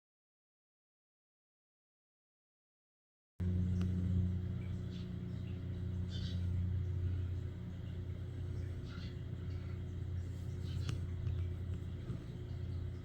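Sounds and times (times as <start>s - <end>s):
low motor rumble: 3.4s - 13.0s
faint bird chirps: 4.6s - 11.6s.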